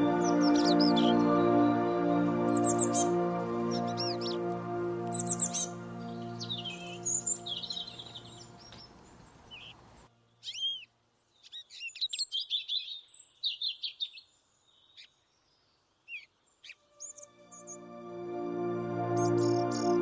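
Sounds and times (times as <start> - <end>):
soft background music: 0.0 - 9.0, 16.8 - 20.0
songbirds chirping: 0.0 - 20.0.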